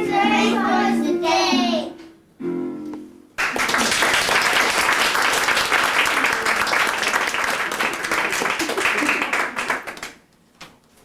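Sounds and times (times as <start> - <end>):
audience applause: 3.4 - 10.2.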